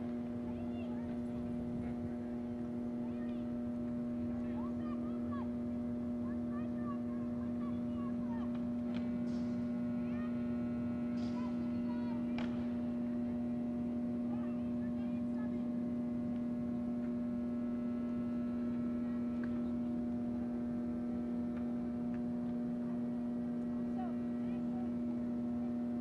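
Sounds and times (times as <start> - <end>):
low electrical hum: 0.0 - 26.0
distant shouts: 0.4 - 21.1.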